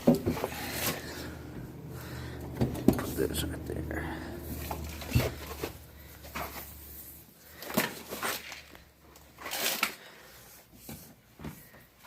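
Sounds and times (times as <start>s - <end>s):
metal scraping rattle: 0.0s - 7.2s.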